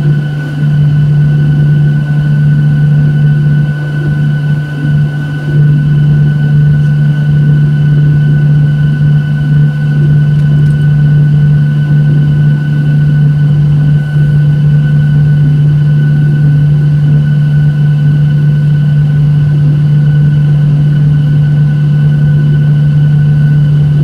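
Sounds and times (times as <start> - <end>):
airplane cabin engine drone: 0.0 - 24.0
high steady engine whine: 0.0 - 24.0.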